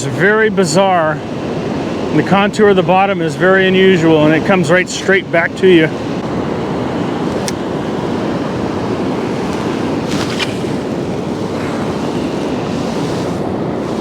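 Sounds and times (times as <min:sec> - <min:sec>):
river flowing over rocks: 0:07.6 - 0:14.0.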